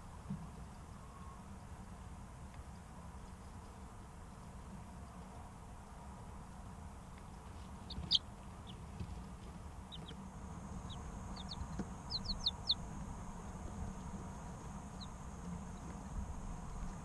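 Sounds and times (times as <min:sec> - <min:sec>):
steady low hum: 0:00.0 - 0:17.0
chicks peeping: 0:07.5 - 0:17.0.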